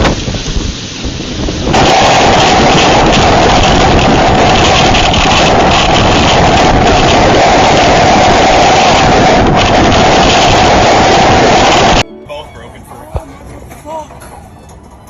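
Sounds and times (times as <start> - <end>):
hurricane wind roaring: 0.0 - 12.0.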